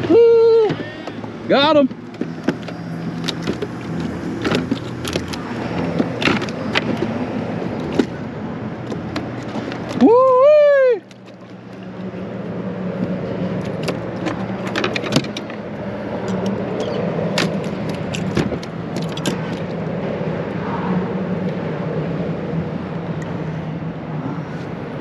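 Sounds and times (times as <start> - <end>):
tackle clicks and taps: 11.0 - 12.1.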